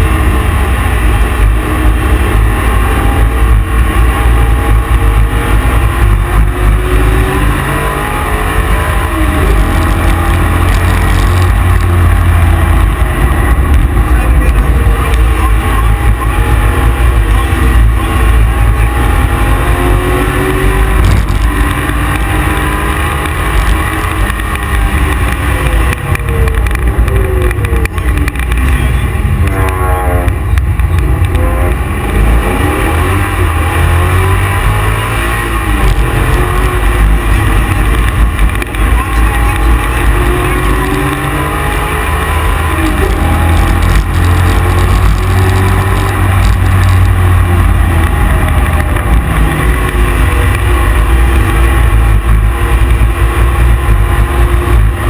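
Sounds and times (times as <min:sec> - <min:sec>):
car engine revving on track: 0:00.0 - 0:55.0.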